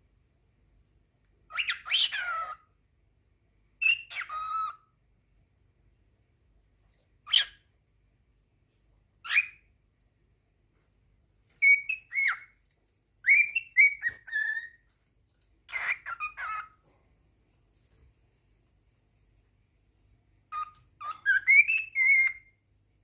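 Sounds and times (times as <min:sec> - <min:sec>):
cockatiel calling and whistling: 0:01.5 - 0:02.7, 0:03.8 - 0:04.9, 0:07.2 - 0:07.7, 0:09.2 - 0:09.7, 0:11.6 - 0:12.5, 0:13.2 - 0:14.9, 0:15.7 - 0:16.8, 0:20.5 - 0:22.6.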